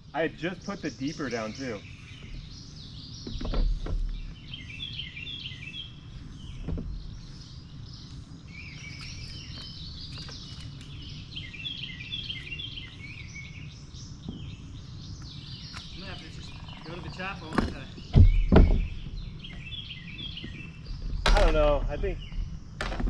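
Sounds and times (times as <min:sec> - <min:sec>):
songbird singing chirpy phrases: 0:00.0 - 0:23.0
dull low thump: 0:06.5 - 0:07.2, 0:17.4 - 0:23.0.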